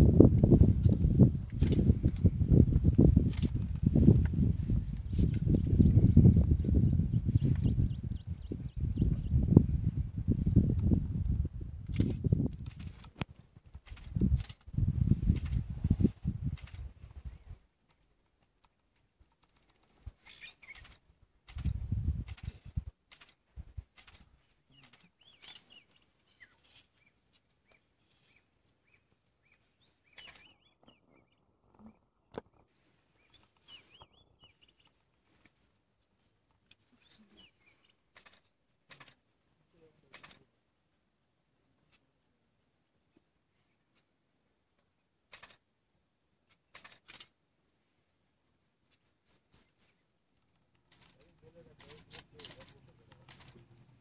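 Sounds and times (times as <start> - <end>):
bird chirping high: 27.7 - 31.4, 33.2 - 34.9, 48.1 - 50.0
soft rustles: 34.6 - 39.2.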